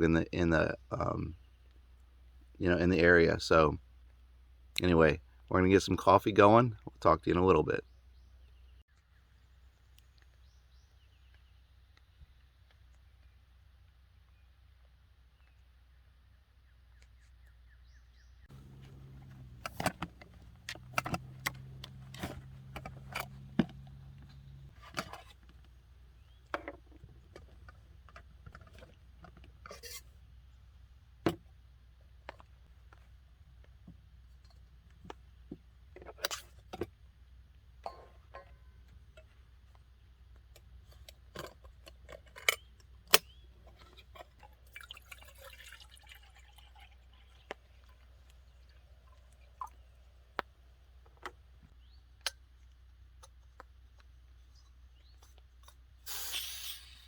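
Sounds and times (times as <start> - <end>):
low steady hum: 18.5 - 32.0.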